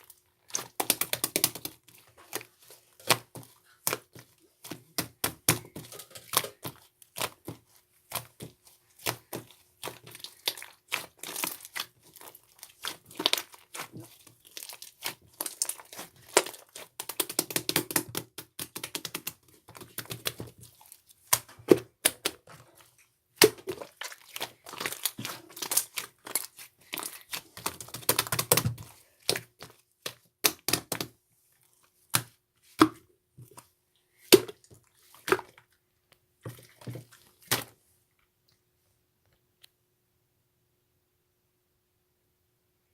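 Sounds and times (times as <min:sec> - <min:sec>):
slime squished by hand crackling: 0:00.5 - 0:31.1.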